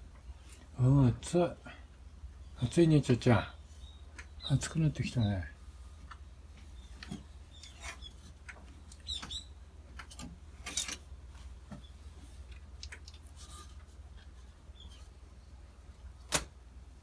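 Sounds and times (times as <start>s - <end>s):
low steady hum: 0.0s - 17.0s
faint bird chirps: 2.4s - 5.6s, 6.6s - 8.2s, 8.9s - 9.7s, 14.7s - 15.2s.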